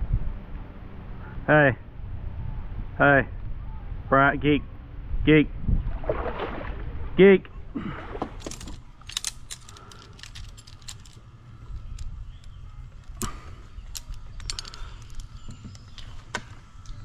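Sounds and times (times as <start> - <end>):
folding table clicks and rattles: 8.4 - 11.2.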